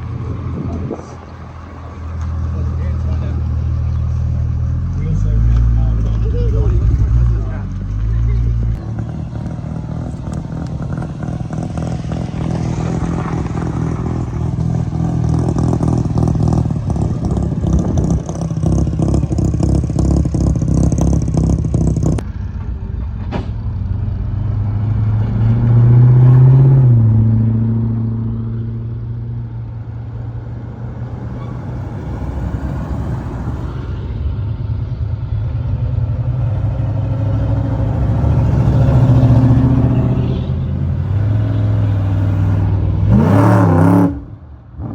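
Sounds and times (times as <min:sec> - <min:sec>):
cars driving past: 0:00.0 - 0:44.9
rapidly pulsing engine: 0:04.9 - 0:22.8.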